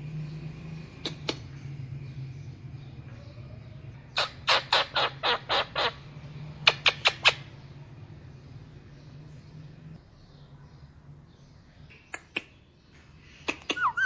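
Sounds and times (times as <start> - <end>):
parrot squawking: 4.2 - 7.5, 13.5 - 14.0.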